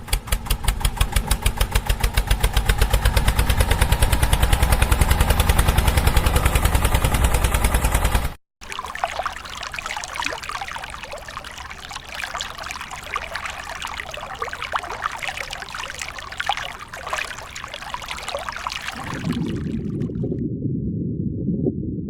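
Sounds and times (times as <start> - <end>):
water pouring and trickling: 8.6 - 20.4.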